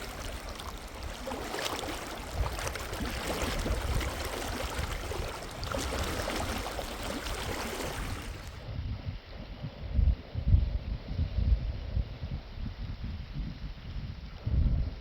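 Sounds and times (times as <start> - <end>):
rushing river water: 0.0 - 8.6.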